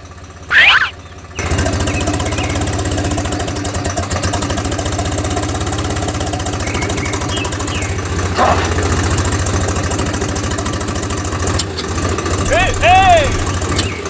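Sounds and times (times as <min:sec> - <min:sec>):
tractor engine starting and idling: 0:00.0 - 0:14.0.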